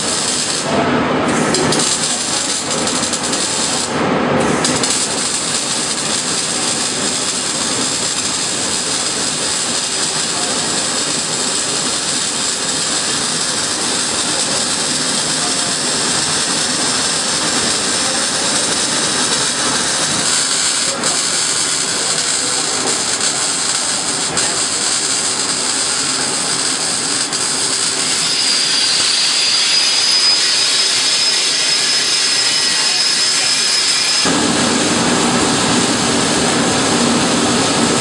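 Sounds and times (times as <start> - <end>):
loud steady hissing: 0.0 - 4.0, 4.6 - 38.0
thin high whistle: 28.0 - 34.2
rising whistle: 28.1 - 34.2.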